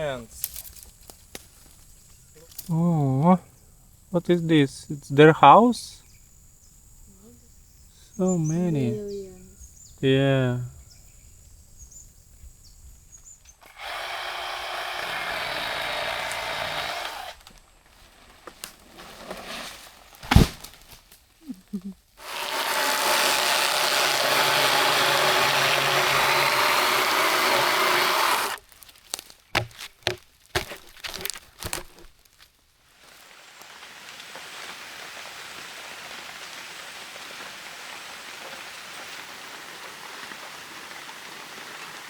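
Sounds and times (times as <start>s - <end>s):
small motorized tool running: 13.7s - 17.4s, 22.2s - 28.6s.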